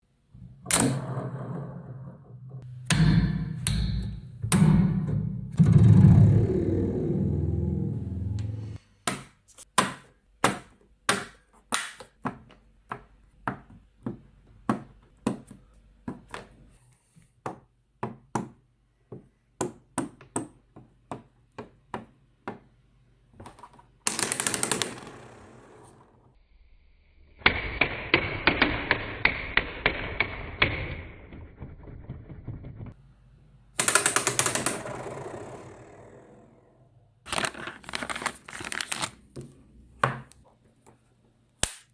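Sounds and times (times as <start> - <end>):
magnets snapping together: 41.6 - 41.9.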